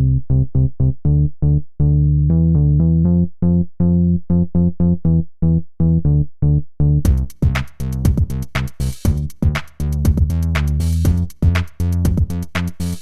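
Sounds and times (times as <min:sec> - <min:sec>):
drum beat: 0:07.1 - 0:13.0
staccato synthesizer bass notes: 0:07.1 - 0:13.0.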